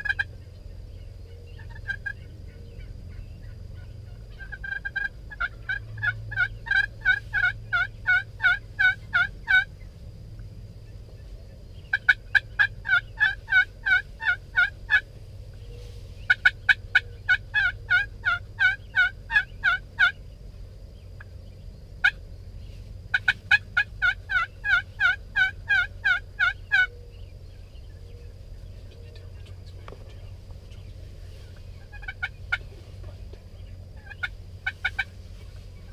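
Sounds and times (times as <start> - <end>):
turkey yelping: 0.0 - 0.3, 1.4 - 9.7, 11.9 - 15.1, 16.3 - 20.2, 23.1 - 27.2, 31.5 - 35.2
low rumble: 0.0 - 35.9.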